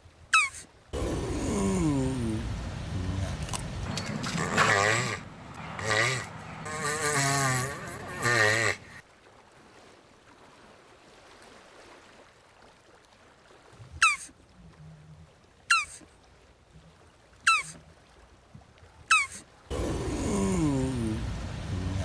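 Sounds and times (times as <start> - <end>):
tortoise squeaky calls: 0.3 - 1.6, 2.4 - 9.0, 14.0 - 14.3, 15.7 - 16.0, 17.5 - 17.8, 19.1 - 22.0
tortoise groaning call: 0.4 - 9.0, 15.7 - 16.0, 17.5 - 17.8, 19.1 - 22.0.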